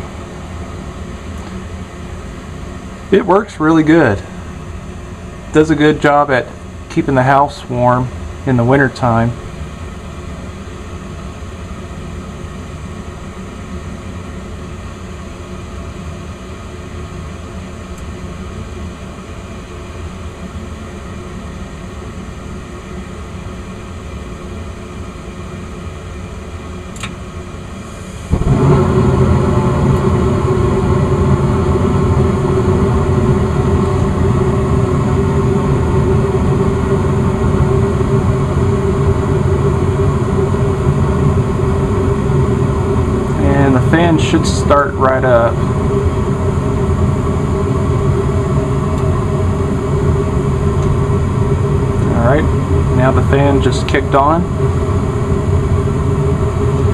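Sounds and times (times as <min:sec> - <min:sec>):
furnace burner noise with hum: 0:00.0 - 0:56.9
furnace draft inducer running: 0:27.7 - 0:56.9.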